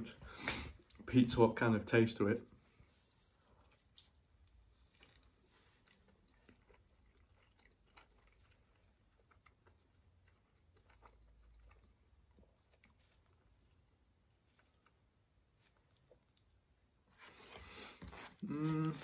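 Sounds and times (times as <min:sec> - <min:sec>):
person chewing: 0:03.4 - 0:16.7, 0:17.3 - 0:19.0.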